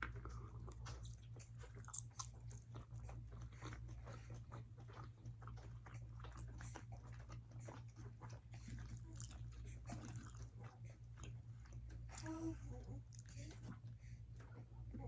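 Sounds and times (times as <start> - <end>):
chewing and biting food: 0.0 - 15.0
steady low hum: 0.0 - 15.0.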